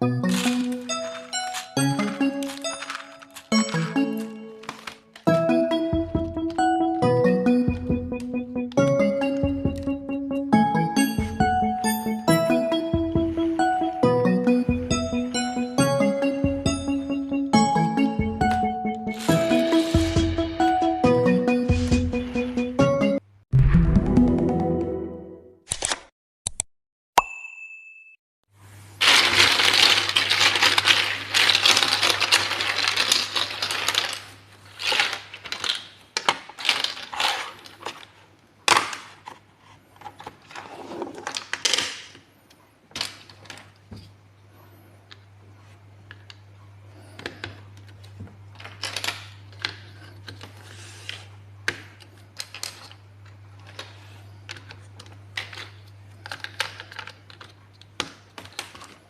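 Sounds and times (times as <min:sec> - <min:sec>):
plastic building blocks clattering: 0:00.3 - 0:05.3, 0:29.0 - 0:39.4, 0:40.0 - 0:42.3, 0:42.9 - 0:43.8, 0:47.1 - 0:59.0
pieces clicking and tapping: 0:54.5 - 0:59.0.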